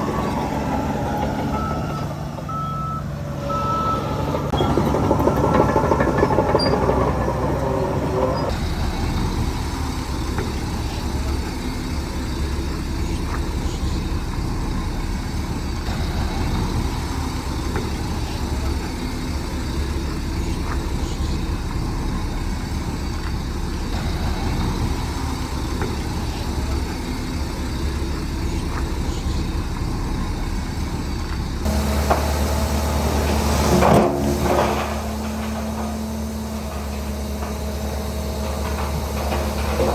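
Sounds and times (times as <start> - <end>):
heavy diesel machinery rumbling: 0.0 - 39.9.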